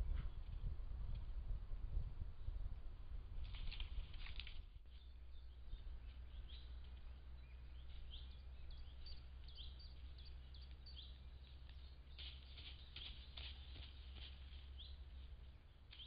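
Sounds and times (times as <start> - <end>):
steady low hum: 0.0 - 16.0
brief rustle: 3.4 - 5.0
small birds chirping: 3.4 - 16.0.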